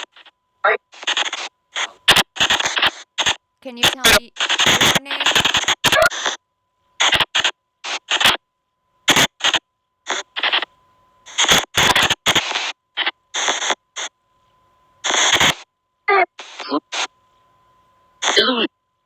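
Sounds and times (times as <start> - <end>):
faint high tone: 3.6 - 5.5.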